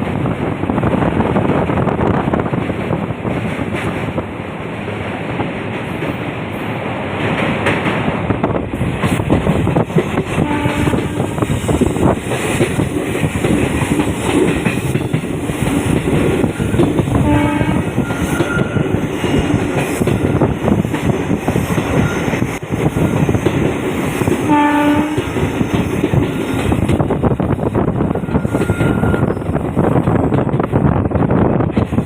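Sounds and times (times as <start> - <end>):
train wheels rumbling on rails: 0.0 - 32.0
train horn blasts: 10.4 - 11.4, 17.2 - 18.9, 24.4 - 25.3, 28.2 - 29.4.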